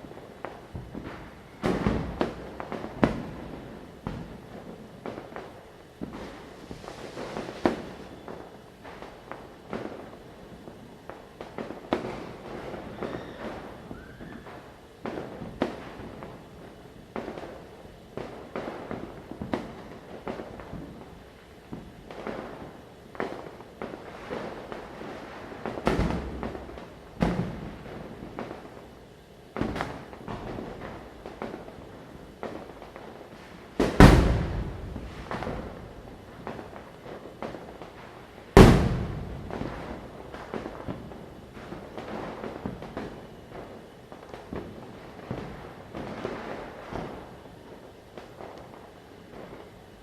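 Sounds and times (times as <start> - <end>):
firecrackers bursting: 0.0 - 50.0
distant crackling pops: 33.8 - 37.9, 38.6 - 41.2.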